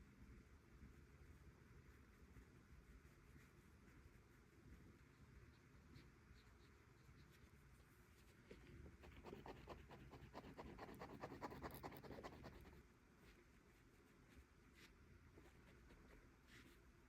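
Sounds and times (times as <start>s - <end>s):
drawing tool scratching on paper: 9.0s - 12.8s.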